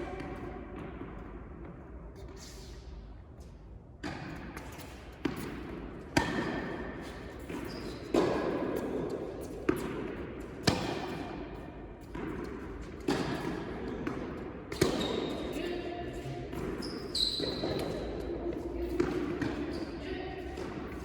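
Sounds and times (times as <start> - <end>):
tennis ball struck by rackets: 4.0 - 15.4, 18.8 - 19.6.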